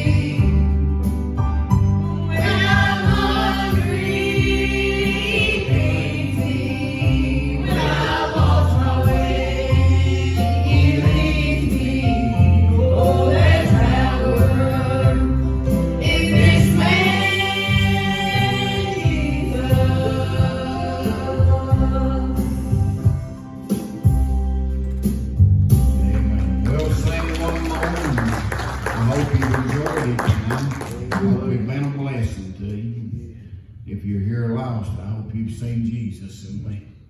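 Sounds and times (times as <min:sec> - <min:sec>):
gospel group singing in harmony: 0:00.0 - 0:01.4, 0:02.1 - 0:23.7
instrumental accompaniment with bass: 0:00.0 - 0:31.6.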